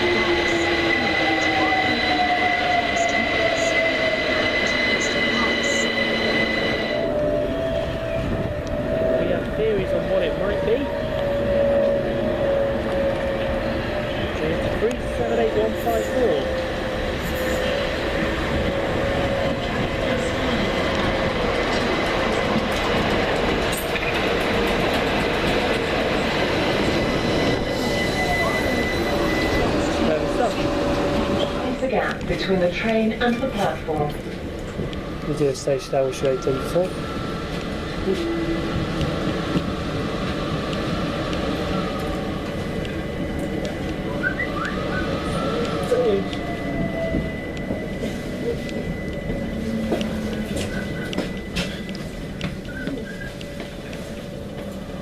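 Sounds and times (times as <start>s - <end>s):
electric train running: 0.0s - 55.0s.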